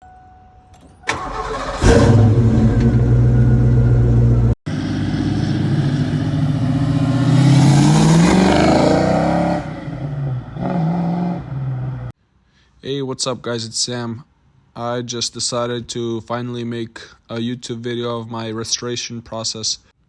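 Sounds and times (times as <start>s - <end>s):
car engine running and revving: 2.0s - 12.1s.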